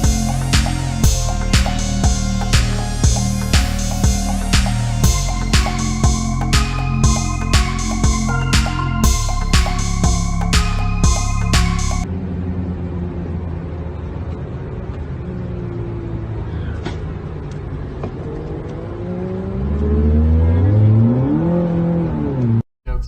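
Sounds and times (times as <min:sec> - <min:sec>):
electronic music: 0:00.0 - 0:12.1
car engine revving: 0:00.0 - 0:14.2, 0:18.1 - 0:22.6.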